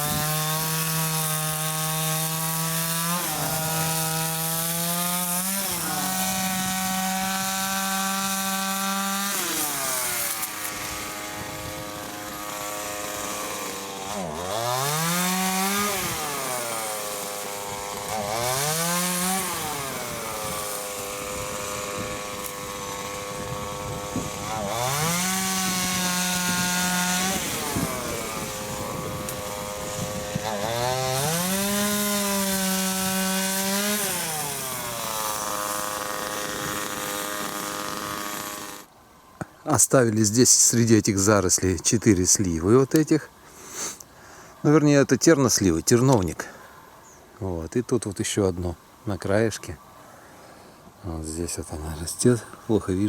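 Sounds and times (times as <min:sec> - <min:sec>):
chainsaw cutting wood: 0:00.0 - 0:39.0.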